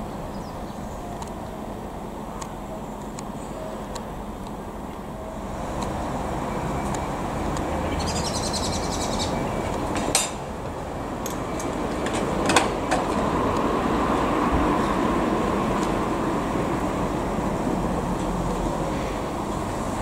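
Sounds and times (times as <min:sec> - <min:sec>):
electric train rumbling: 0:00.0 - 0:20.0
bird trilling: 0:07.8 - 0:09.7.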